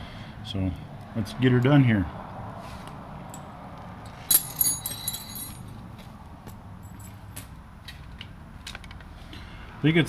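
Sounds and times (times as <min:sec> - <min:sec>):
metal tools clinking and rattling: 0:04.1 - 0:05.8.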